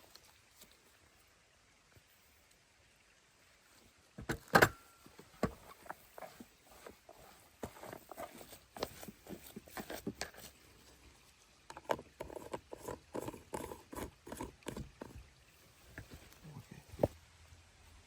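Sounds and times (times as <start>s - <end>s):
objects knocking and clicking: 11.7s - 15.2s.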